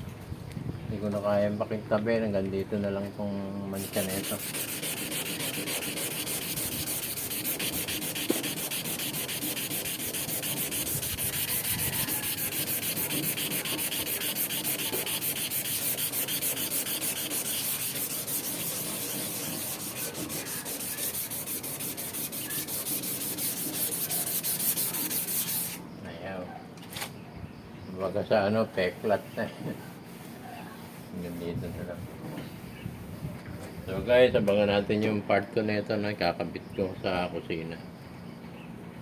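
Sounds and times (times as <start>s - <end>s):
scrubbing stainless steel: 3.8s - 25.8s.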